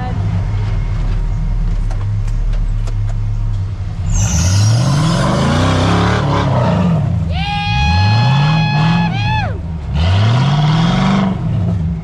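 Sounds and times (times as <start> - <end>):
engine revving: 3.9 - 12.0.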